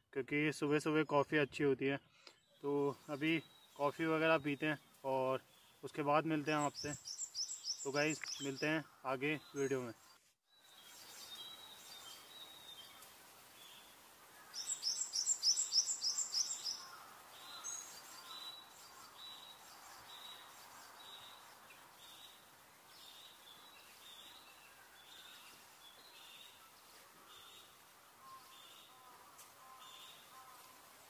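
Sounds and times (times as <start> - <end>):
faint background hiss: 0.1 - 31.0
soft high bird chirp: 14.5 - 20.5.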